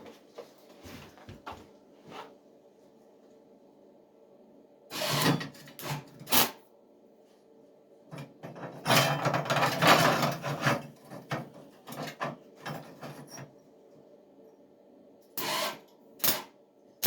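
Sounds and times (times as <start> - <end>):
arc welding crackling: 15.4 - 16.5.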